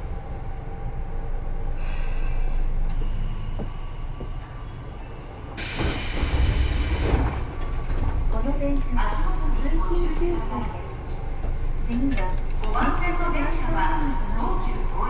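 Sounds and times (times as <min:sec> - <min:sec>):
train wheels rumbling on rail: 0:00.0 - 0:15.0
loud hiss: 0:05.6 - 0:07.3.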